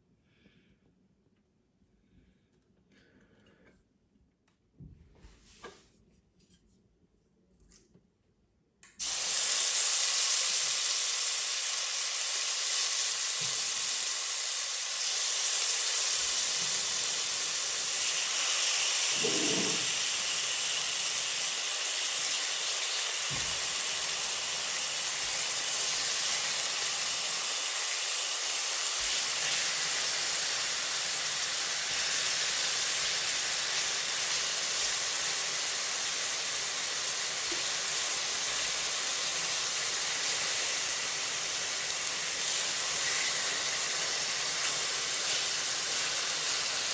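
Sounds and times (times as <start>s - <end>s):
food sizzling in a pan: 9.0s - 46.9s.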